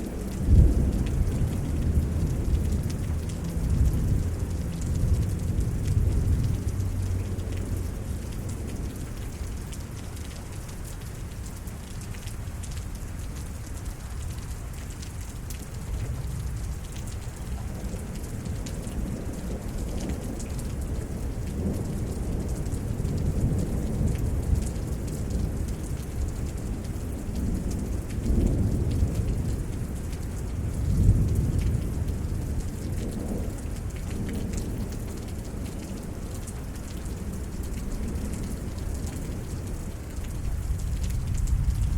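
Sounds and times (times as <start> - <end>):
steady rain falling: 0.0 - 41.9
rolling thunder rumbling: 0.1 - 7.9, 26.6 - 41.9.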